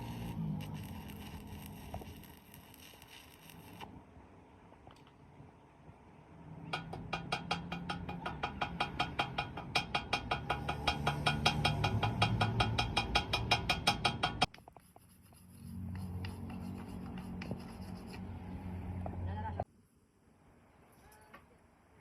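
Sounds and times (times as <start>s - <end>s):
regular sharp ticking: 6.8s - 15.4s.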